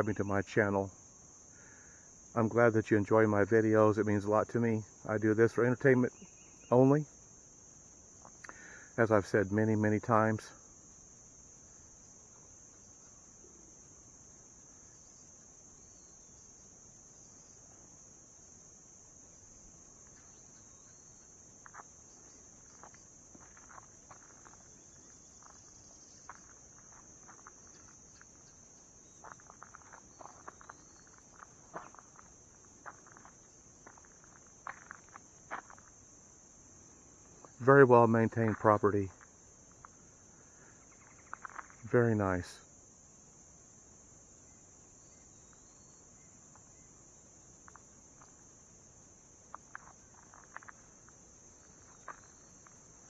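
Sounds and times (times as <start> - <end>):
high-pitched insect chorus: 0.0 - 53.0
light footsteps: 21.6 - 40.0.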